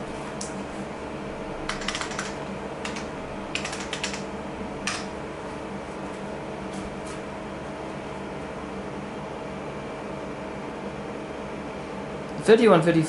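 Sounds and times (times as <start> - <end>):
computer fans humming: 0.0 - 13.0
typing on keyboard: 1.7 - 4.3.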